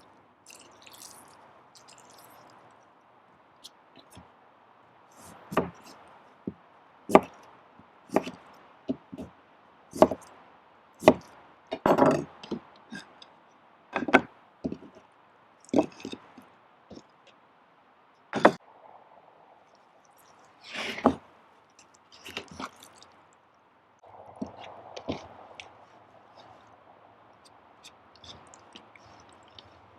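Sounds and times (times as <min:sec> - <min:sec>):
chopping wood: 0:05.4 - 0:05.8, 0:07.1 - 0:07.4, 0:08.1 - 0:09.3, 0:10.0 - 0:10.2, 0:11.0 - 0:12.7.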